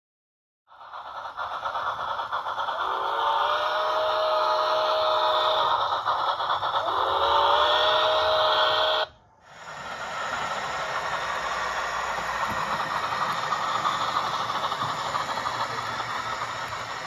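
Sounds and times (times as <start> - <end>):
steady steam hiss: 0.7 - 17.0
steam locomotive whistle: 2.8 - 5.9, 6.8 - 9.1.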